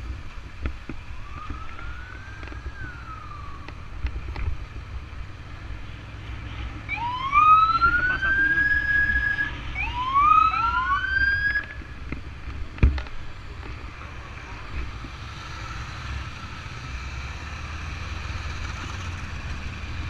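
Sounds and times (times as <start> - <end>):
siren wailing: 1.1 - 3.9, 6.9 - 11.8.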